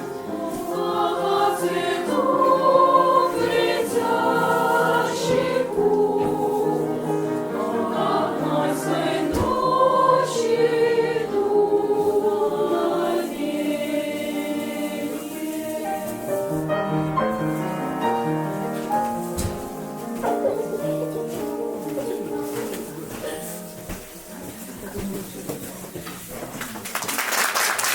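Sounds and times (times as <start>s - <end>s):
children's choir singing in harmony: 0.0s - 24.7s.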